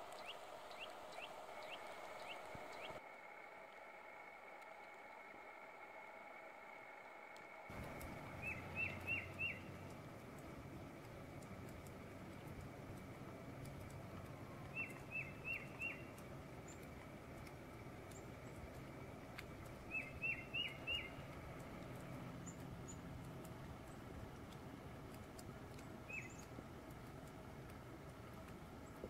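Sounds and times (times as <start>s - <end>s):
steady outdoor hiss: 0.0s - 29.0s
songbird calling: 0.1s - 3.0s, 7.7s - 10.0s, 13.7s - 18.8s, 19.6s - 23.1s, 25.8s - 26.5s.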